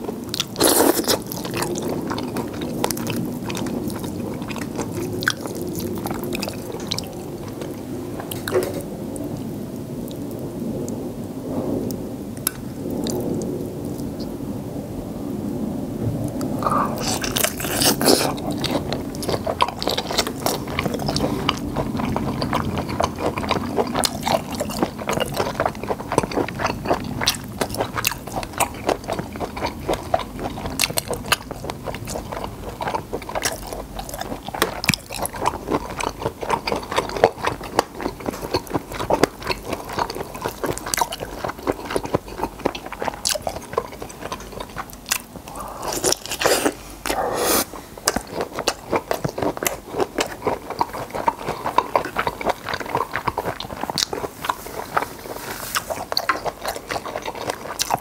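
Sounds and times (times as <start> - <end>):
crunching and chewing: 0.0 - 11.0, 16.3 - 58.0.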